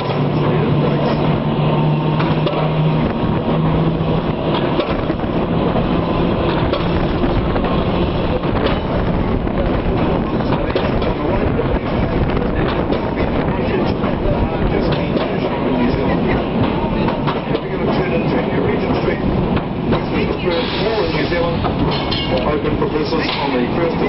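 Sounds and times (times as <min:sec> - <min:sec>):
low motor hum: 0:00.0 - 0:14.8
tram wheels rumbling on rails: 0:00.0 - 0:24.0.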